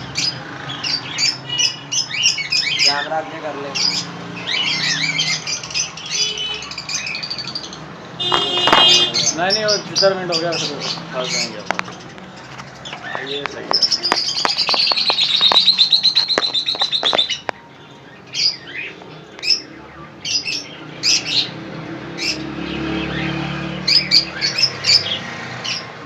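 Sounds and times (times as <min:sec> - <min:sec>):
small birds chirping: 0:00.0 - 0:26.0
fast high bird trill: 0:08.2 - 0:17.5.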